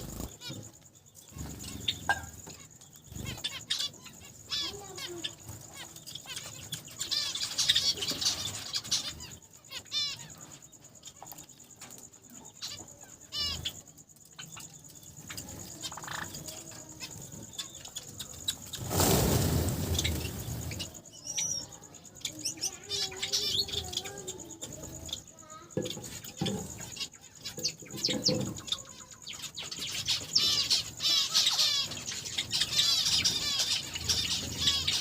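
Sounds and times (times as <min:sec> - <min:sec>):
wings fluttering: 0:00.0 - 0:09.4, 0:15.2 - 0:21.6
finches chirping: 0:00.0 - 0:35.0.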